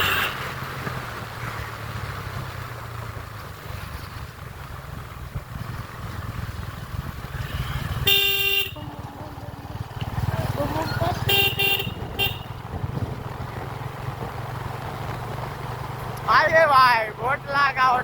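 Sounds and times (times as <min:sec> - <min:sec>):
motorcycle engine running: 0:00.0 - 0:18.0
vehicle horn honk: 0:08.0 - 0:09.0, 0:11.2 - 0:12.6.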